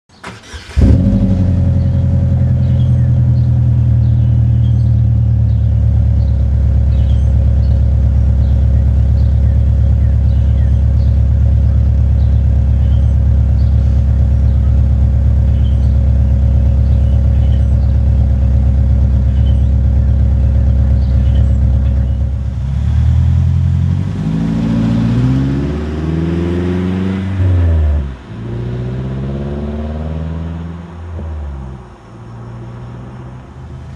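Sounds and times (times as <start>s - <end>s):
car engine revving: 0.2s - 31.2s
car engine idling loudly: 0.8s - 24.1s.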